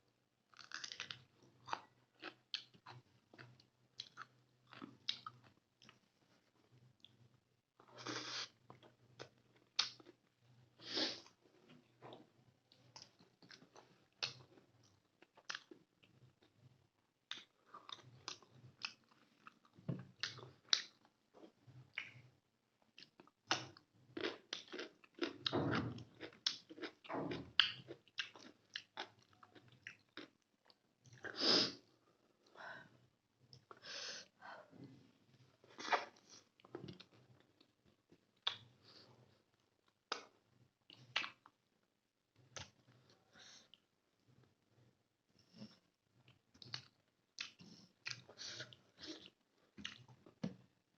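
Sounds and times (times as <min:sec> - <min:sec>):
chewing food: 0:00.5 - 0:06.0, 0:07.8 - 0:10.2, 0:12.1 - 0:22.3, 0:22.9 - 0:31.3, 0:39.4 - 0:41.6, 0:45.6 - 0:50.6.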